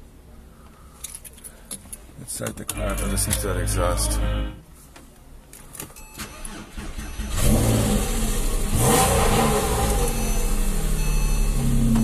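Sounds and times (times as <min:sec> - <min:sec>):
car engine starting and idling: 0:06.0 - 0:12.0.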